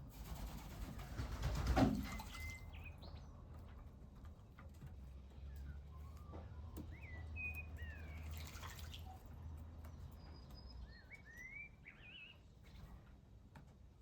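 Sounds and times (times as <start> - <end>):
small birds chirping: 5.4 - 9.2, 9.8 - 12.6
water dripping and splashing: 8.2 - 9.2.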